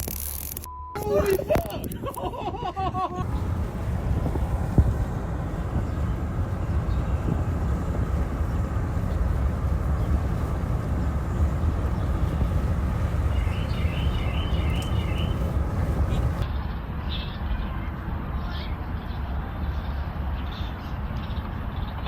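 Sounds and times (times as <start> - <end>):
low outdoor rumble: 0.0 - 22.0
high bird chirps: 10.3 - 16.4.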